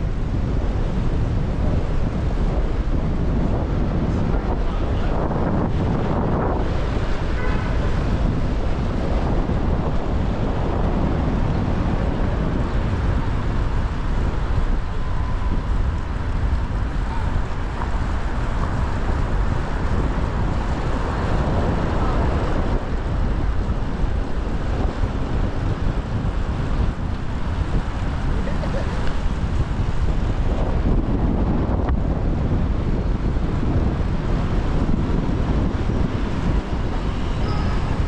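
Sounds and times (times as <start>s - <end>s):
city traffic noise: 0.0s - 38.0s
wind rushing over microphone: 0.0s - 38.0s.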